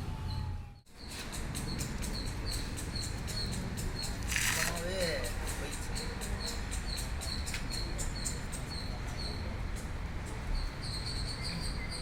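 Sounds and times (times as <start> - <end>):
bird chirping: 0.2 - 9.5.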